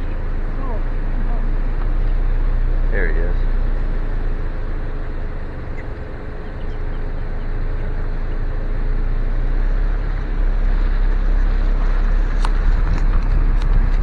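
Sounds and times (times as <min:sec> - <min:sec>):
car engine and road rumble: 0:00.0 - 0:14.0
faint steady hum: 0:00.0 - 0:14.0.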